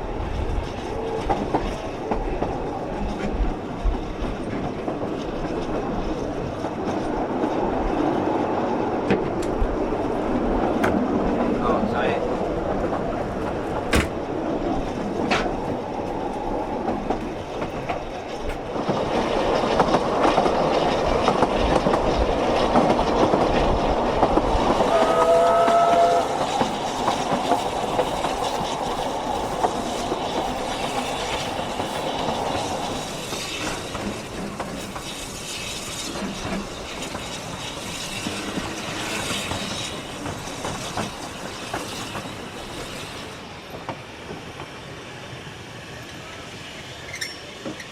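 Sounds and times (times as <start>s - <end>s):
train wheels rumbling on rails: 0.0s - 47.9s
train whistle toot: 24.9s - 26.6s.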